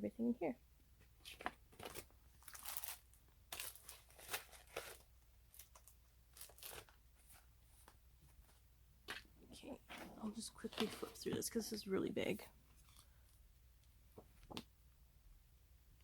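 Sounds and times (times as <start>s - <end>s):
paper rustling and crinkling: 1.2s - 8.6s, 9.9s - 11.5s.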